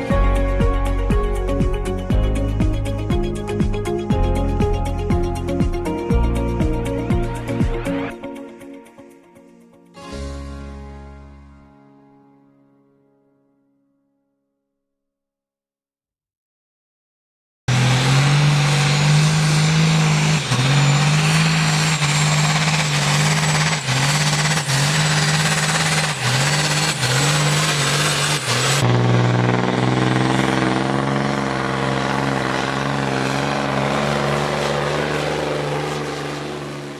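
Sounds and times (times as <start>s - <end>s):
truck diesel engine revving: 17.7s - 36.9s.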